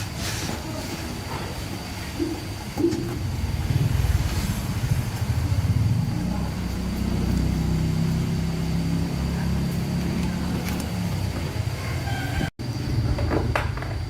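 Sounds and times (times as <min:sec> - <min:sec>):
engine running: 0:02.2 - 0:13.1.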